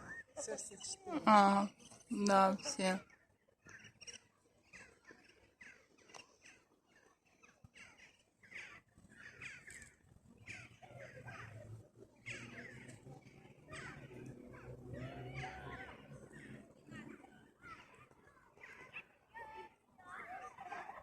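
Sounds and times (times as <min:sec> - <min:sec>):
shelducks calling harshly: 0:13.7 - 0:14.8.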